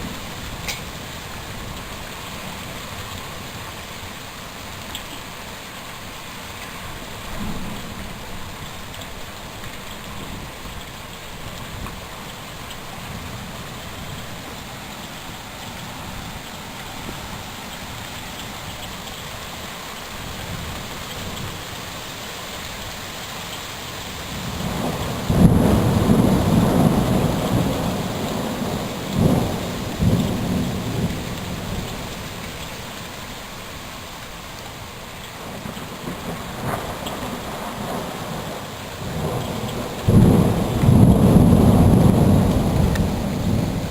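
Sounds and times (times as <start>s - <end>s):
steady rain falling: 0.0s - 43.9s
low thunder rumble: 24.3s - 32.5s, 35.4s - 43.9s.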